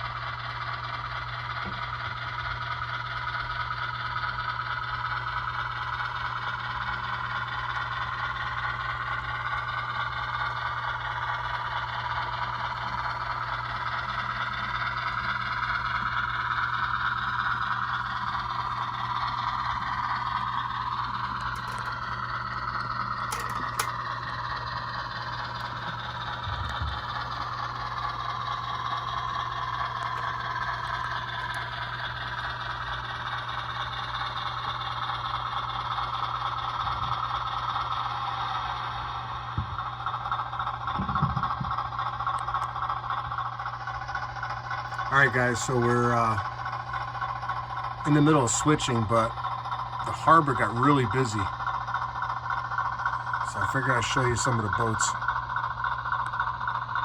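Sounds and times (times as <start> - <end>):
model locomotive mechanical drone: 0.0 - 57.0
small wheels rattling on track: 8.3 - 22.2, 23.2 - 32.8.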